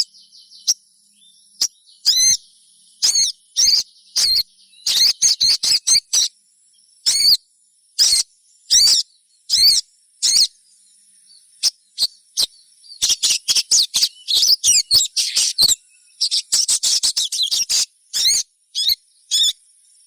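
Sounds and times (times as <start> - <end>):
bird chip calls: 1.6 - 6.3, 7.0 - 7.4, 8.0 - 10.6, 11.5 - 19.6.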